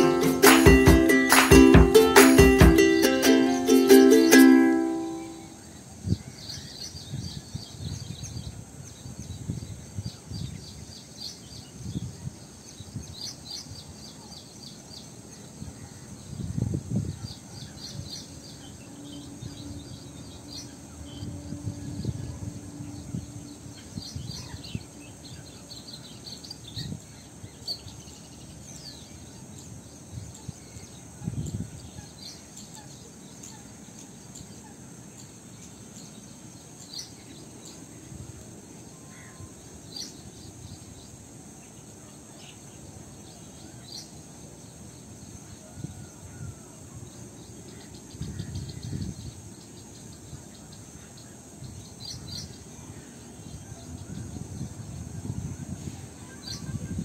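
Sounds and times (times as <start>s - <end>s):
steady high hiss: 0.0s - 57.0s.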